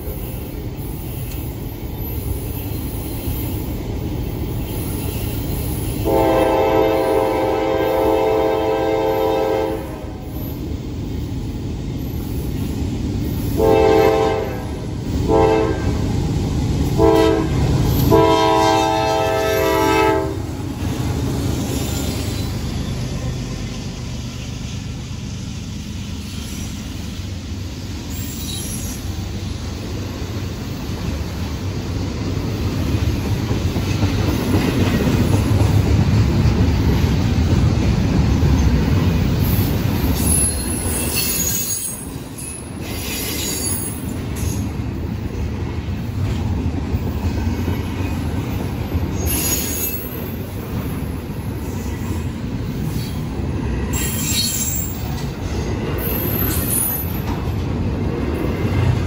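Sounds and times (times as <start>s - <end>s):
train rumbling past: 0.0s - 59.0s
locomotive horn blasts: 6.0s - 10.2s, 13.6s - 16.0s, 17.0s - 20.5s.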